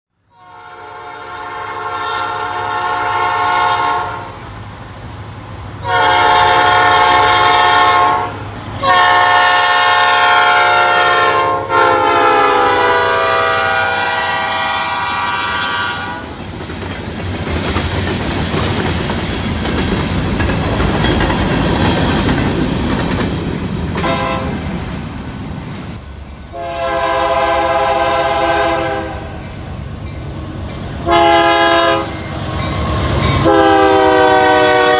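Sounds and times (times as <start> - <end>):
locomotive chime horn blasts: 0.3 - 4.4, 5.8 - 16.3, 24.0 - 24.6, 26.5 - 29.6, 31.0 - 34.9
train rumble and clatter: 1.8 - 34.9.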